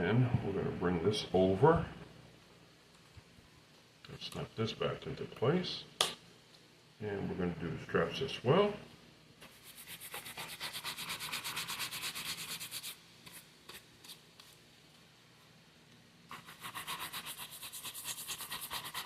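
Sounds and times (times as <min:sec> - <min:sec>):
brush buffing leather: 0:16.3 - 0:19.0.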